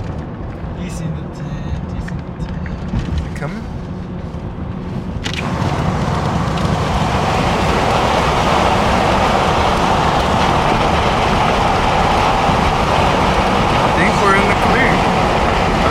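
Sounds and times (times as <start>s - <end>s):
road and engine noise in vehicle: 0.0s - 15.9s.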